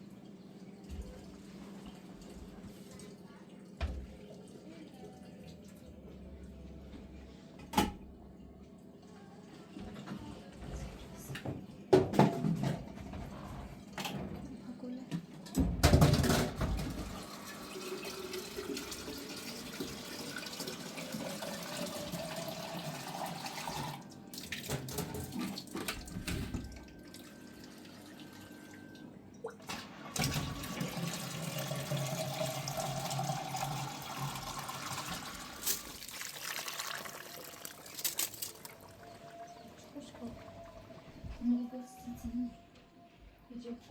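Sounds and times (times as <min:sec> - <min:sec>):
tap water filling container: 0:00.8 - 0:04.2, 0:16.6 - 0:27.3, 0:29.6 - 0:39.0.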